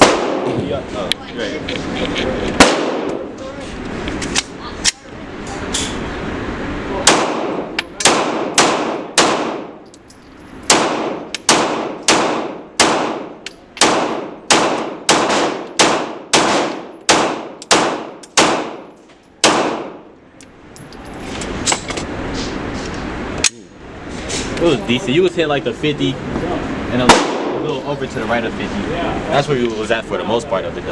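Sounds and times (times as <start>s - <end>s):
gunshots with ringing echo: 0.0s - 0.5s, 2.6s - 3.2s, 7.0s - 9.8s, 10.7s - 20.1s, 27.1s - 27.6s.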